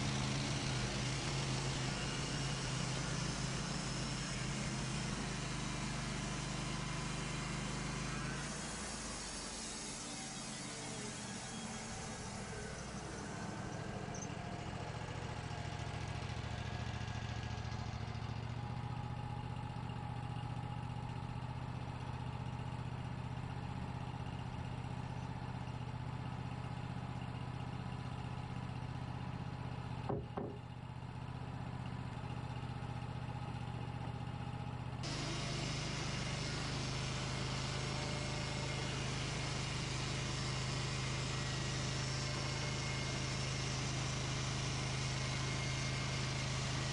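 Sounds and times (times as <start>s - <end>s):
sawmill engine running: 0.0s - 46.9s
sharp knock: 30.1s - 30.6s.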